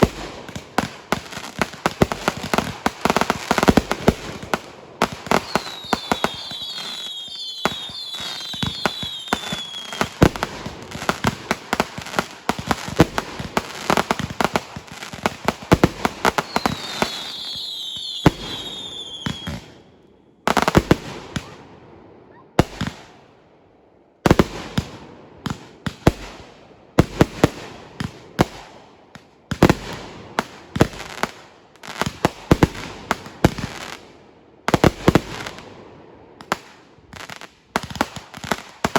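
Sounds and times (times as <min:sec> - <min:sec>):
fireworks bangs and crackling: 0:00.0 - 0:21.8, 0:22.6 - 0:23.3, 0:24.2 - 0:38.9
falling firework whistles: 0:05.2 - 0:10.0, 0:16.3 - 0:20.0.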